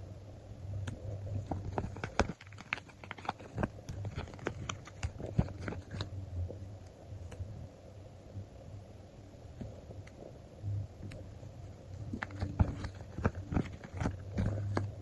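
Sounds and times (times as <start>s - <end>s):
low steady hum: 0.0s - 15.0s
paper taps and crinkles: 0.9s - 6.1s, 12.0s - 15.0s.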